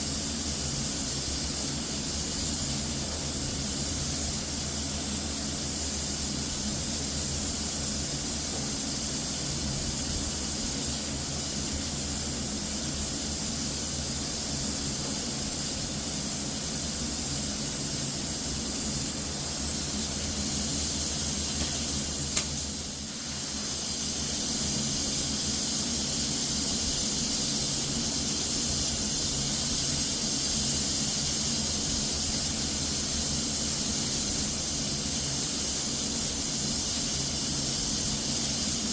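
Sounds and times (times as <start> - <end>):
spray gun hissing: 14.3 - 38.9
sharp click: 21.2 - 22.7.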